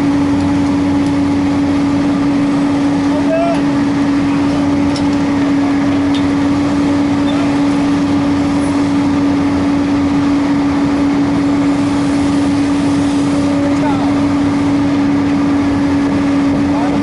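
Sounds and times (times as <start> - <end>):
diesel engine humming: 0.0 - 17.0.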